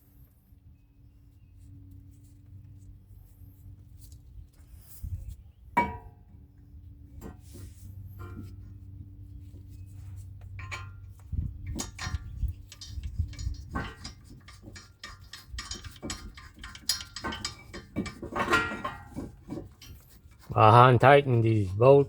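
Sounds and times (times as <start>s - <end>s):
low steady hum: 0.0s - 22.0s
metal clinks of brake parts: 10.5s - 20.1s.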